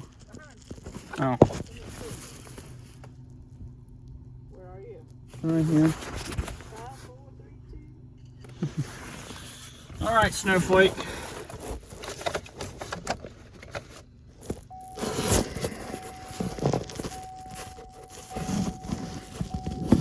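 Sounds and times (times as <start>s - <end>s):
small clicks and scrapes: 0.0s - 3.9s, 8.2s - 20.0s
electronic chime tone: 14.7s - 20.0s.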